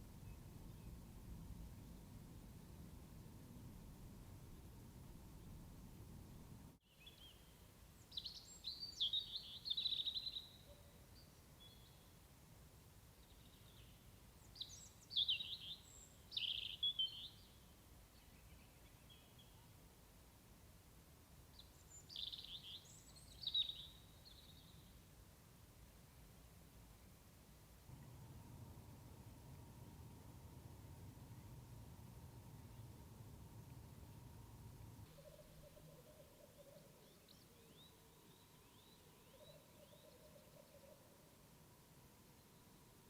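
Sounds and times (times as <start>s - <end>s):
faint outdoor background: 0.0s - 43.0s
songbird chirping: 4.2s - 12.3s, 13.0s - 20.2s, 21.4s - 25.2s, 27.8s - 43.0s.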